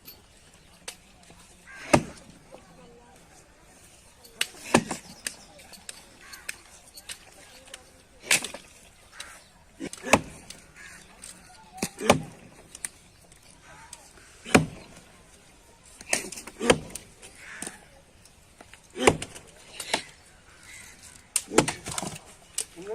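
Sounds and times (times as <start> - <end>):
heavy chopping strikes on wood: 1.8 - 2.2, 4.6 - 5.1, 10.0 - 10.4, 11.8 - 12.5, 14.4 - 15.0, 16.0 - 17.8, 19.0 - 20.1, 21.4 - 22.2.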